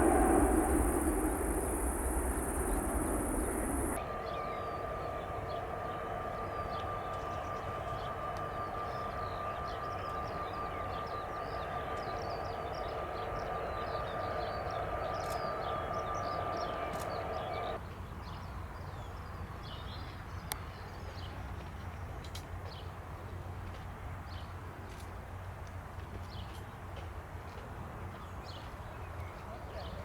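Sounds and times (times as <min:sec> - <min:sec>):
small birds chirping: 0:00.0 - 0:04.0
jet engine high whine: 0:00.0 - 0:17.8
jet engines droning: 0:00.0 - 0:17.8.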